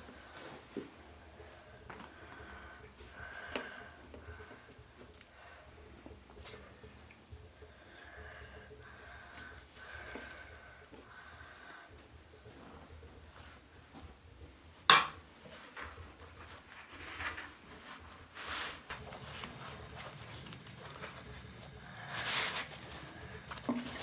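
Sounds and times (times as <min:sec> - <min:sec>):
sharp clink of kitchenware: 0:14.9 - 0:15.2.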